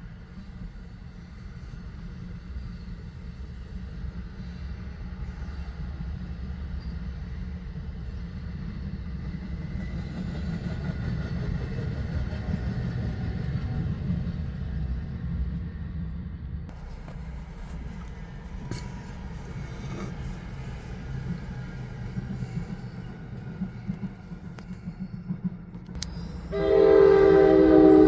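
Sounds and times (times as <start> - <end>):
train passing with low rumble: 0.0 - 28.0.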